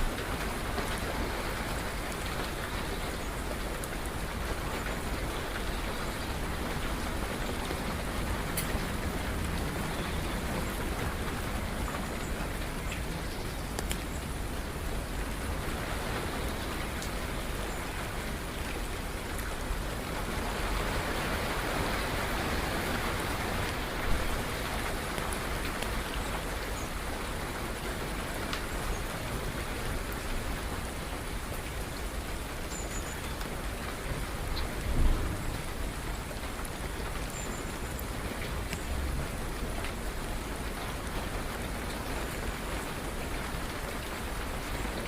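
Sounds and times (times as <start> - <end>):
steady rain falling: 0.0 - 45.0
sharp water drips: 6.7 - 14.5.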